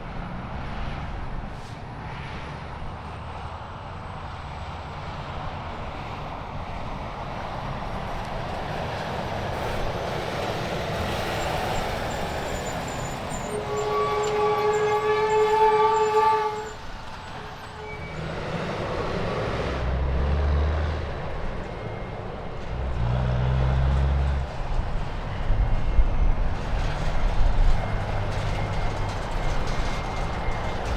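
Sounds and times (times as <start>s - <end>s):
deep truck engine rumble: 0.0s - 30.9s
heavy trucks passing: 0.0s - 30.9s
multi-tone air horn blast: 13.5s - 16.8s.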